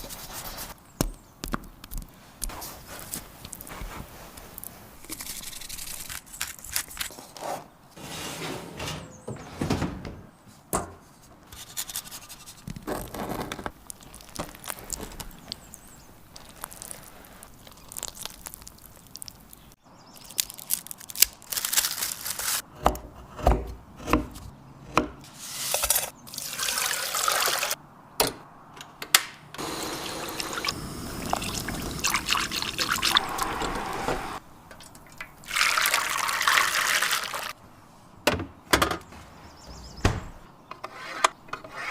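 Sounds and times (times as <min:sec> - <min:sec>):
liquid pouring: 0:26.3 - 0:27.8, 0:29.8 - 0:34.0, 0:34.8 - 0:37.5.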